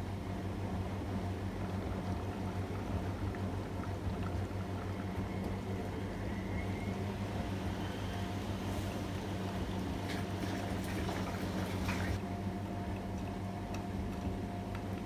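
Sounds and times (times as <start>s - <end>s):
washing machine motor hum: 1.1s - 12.2s
water and laundry sloshing: 7.2s - 12.2s.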